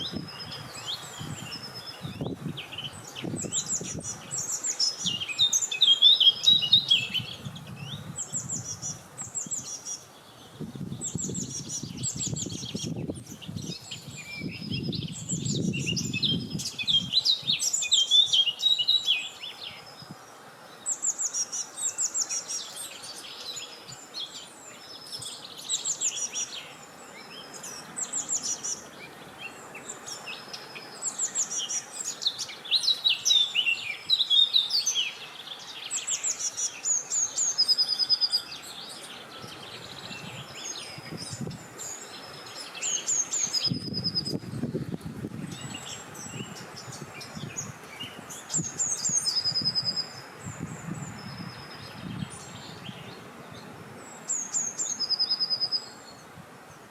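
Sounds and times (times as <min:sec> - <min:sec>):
low wind rumble: 0:00.0 - 0:05.3, 0:06.6 - 0:17.6, 0:38.7 - 0:42.8, 0:43.5 - 0:54.2
songbirds chirping and trilling: 0:00.0 - 0:56.9.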